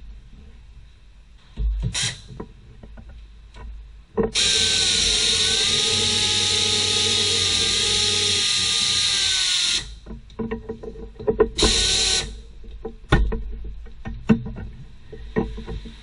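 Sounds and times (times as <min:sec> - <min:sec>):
power drill whining: 0:04.4 - 0:10.0, 0:11.6 - 0:12.4.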